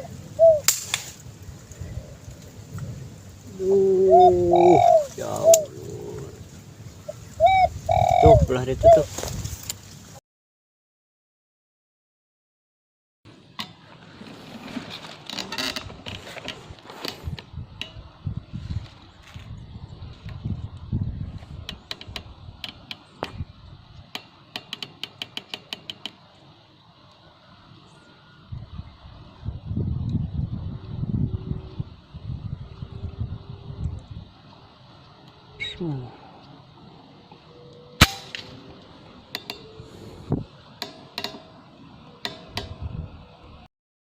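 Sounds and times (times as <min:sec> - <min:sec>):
air rifle shot: 0:38.0 - 0:38.6.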